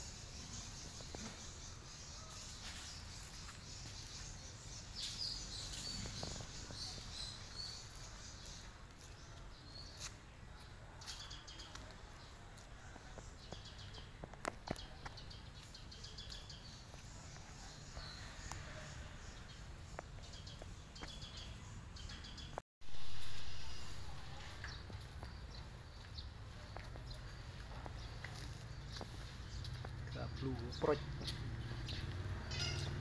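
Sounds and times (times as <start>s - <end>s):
small birds chirping: 0.0s - 22.6s, 24.1s - 33.0s.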